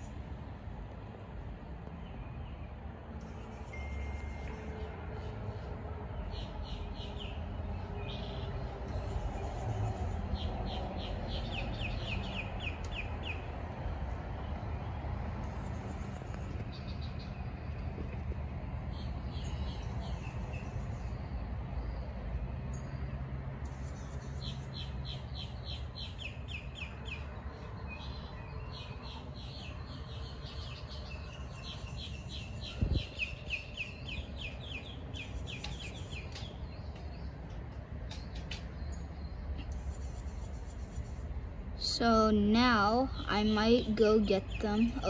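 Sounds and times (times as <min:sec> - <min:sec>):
songbird singing: 0:01.5 - 0:45.0.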